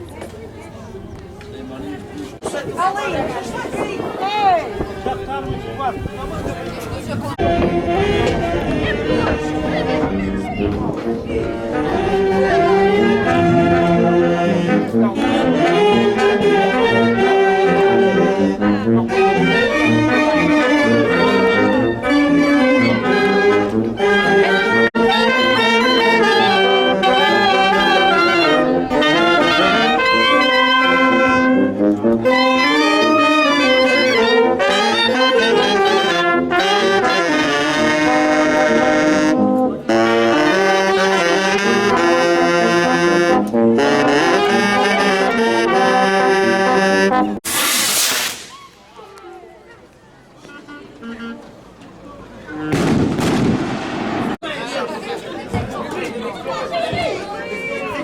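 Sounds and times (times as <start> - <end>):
brass band playing: 7.4 - 48.8, 52.4 - 54.4.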